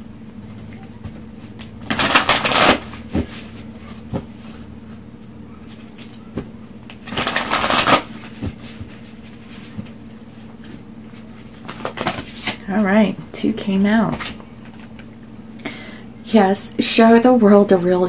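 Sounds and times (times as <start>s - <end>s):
cards riffling: 1.5s - 4.2s, 6.8s - 9.9s, 10.6s - 12.6s.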